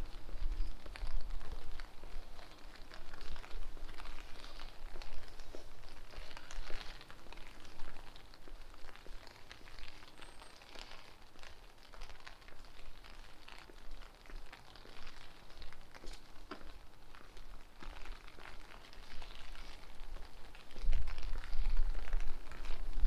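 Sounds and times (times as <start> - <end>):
wind rumble on microphone: 0.0 - 2.3, 19.5 - 23.0
rain drops ticking: 0.0 - 23.0.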